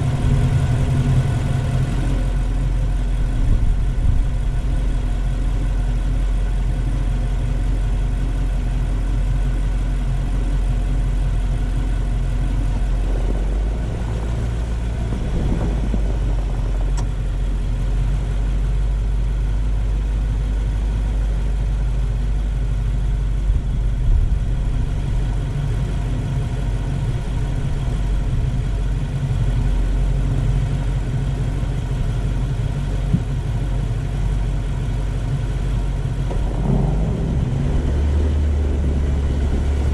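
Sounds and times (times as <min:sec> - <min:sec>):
car engine running: 0:00.0 - 0:39.9
road noise: 0:00.0 - 0:39.9.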